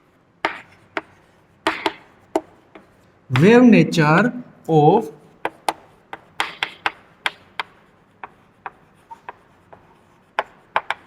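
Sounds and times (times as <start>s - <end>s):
pen taps and scrapes writing: 0.4s - 3.5s, 5.4s - 11.0s.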